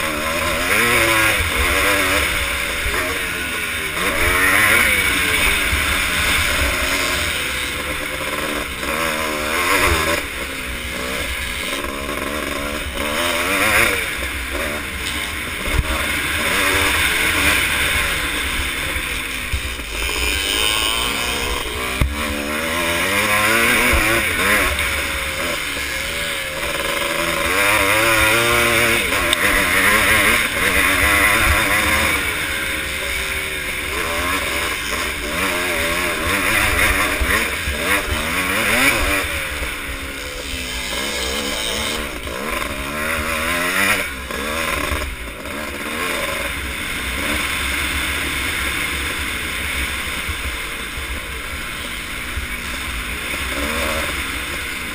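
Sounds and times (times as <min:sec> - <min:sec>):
motorcycle engines revving: 0:00.0 - 0:54.9.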